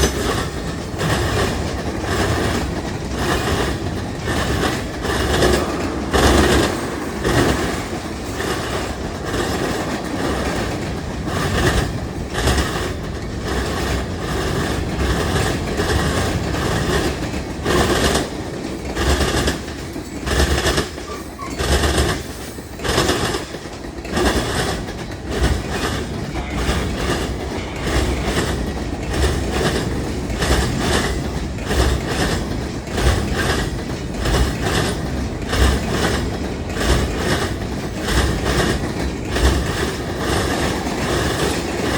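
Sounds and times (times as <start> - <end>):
train wheels clacking over rails: 0.0 - 41.9
low rumble: 5.0 - 11.8, 26.3 - 30.7.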